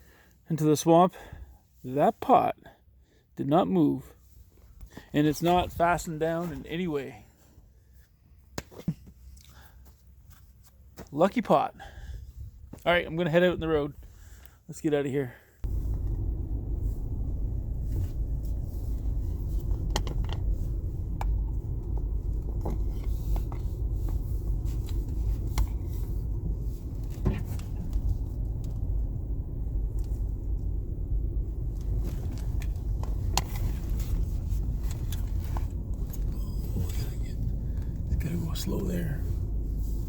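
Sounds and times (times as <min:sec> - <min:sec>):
engine and tyres rumbling: 0:01.2 - 0:40.0.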